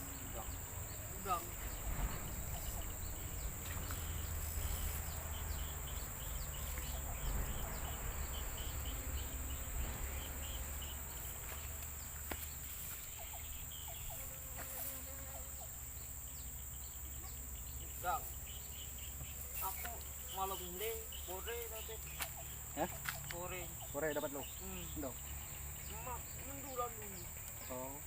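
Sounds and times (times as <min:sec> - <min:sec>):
high-pitched insect buzz: 0:00.0 - 0:23.4
quick repeated insect chirps: 0:00.0 - 0:28.0
low rumble: 0:00.6 - 0:12.2.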